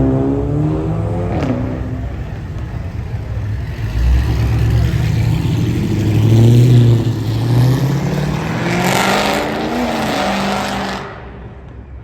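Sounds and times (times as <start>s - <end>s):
car engine revving: 3.3s - 11.4s.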